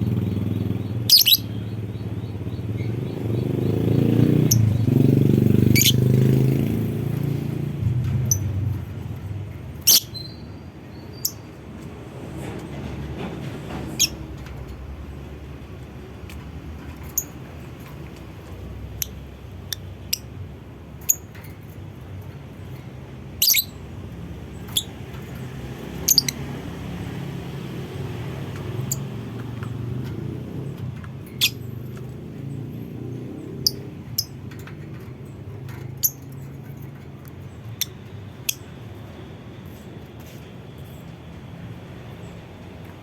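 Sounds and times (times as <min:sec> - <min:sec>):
bird chirping: 0:00.0 - 0:06.6, 0:09.8 - 0:11.5, 0:23.4 - 0:23.9, 0:24.6 - 0:26.5, 0:31.2 - 0:34.8.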